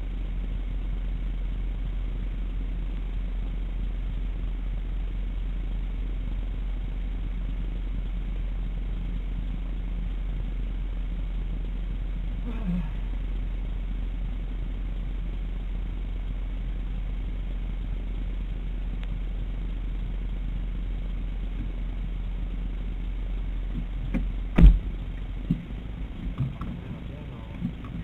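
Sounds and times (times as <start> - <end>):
car engine idling: 0.0 - 28.0
loud thump: 24.1 - 24.9.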